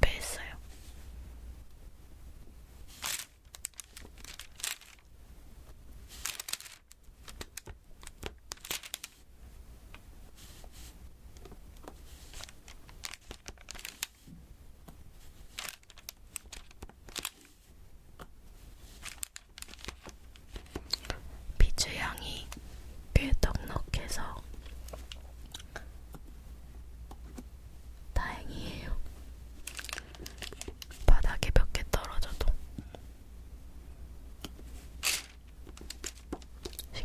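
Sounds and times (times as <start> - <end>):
sticky canvas crackling: 2.9 - 5.1, 6.1 - 9.2, 11.8 - 14.3, 15.2 - 17.6, 18.8 - 21.1.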